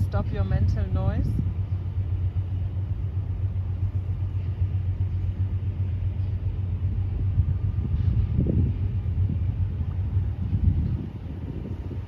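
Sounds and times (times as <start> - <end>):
distant engine rumble: 0.0 - 12.0.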